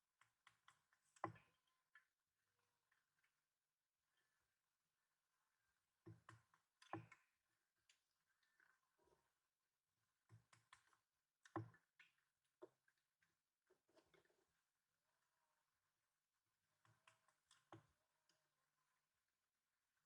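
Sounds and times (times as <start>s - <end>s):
faint clicks and knocks: 0.2s - 2.1s, 6.0s - 9.2s, 10.2s - 14.6s, 16.8s - 18.5s.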